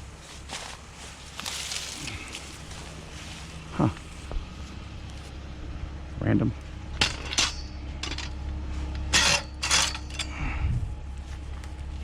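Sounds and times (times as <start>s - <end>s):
steady low hum: 0.0s - 12.0s
object clinking and rattling: 7.0s - 10.4s.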